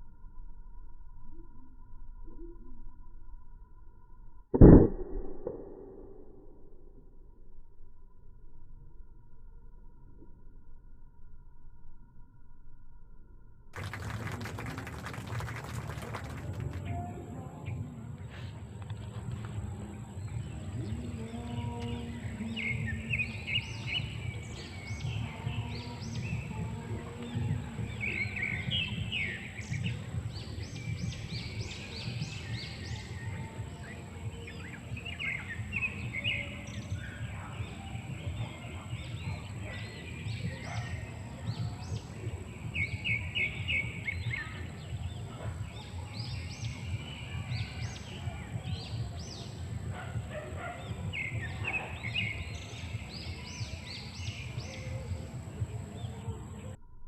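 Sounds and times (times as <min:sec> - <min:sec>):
steady low rumble: 0:00.0 - 0:45.8
birds chirping: 0:13.8 - 0:56.8.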